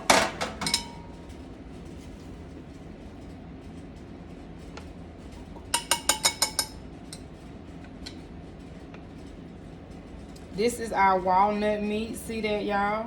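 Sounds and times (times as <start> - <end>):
utensil clinking against dish: 0.0 - 1.2, 5.3 - 7.3.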